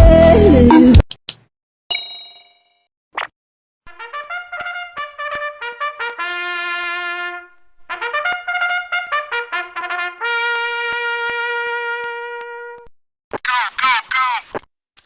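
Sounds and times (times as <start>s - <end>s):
solo trumpet playing: 3.9s - 12.9s.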